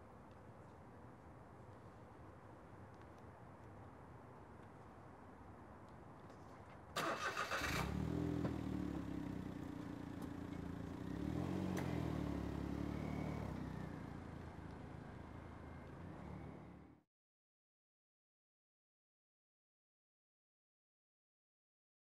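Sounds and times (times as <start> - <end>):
car starter cranking: 7.0 - 8.0
small car engine running: 7.2 - 17.0.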